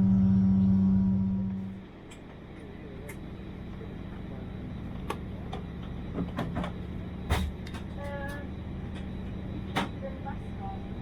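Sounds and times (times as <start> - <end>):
short pitched tone: 0.0 - 1.7
airplane cabin hum: 0.0 - 11.0.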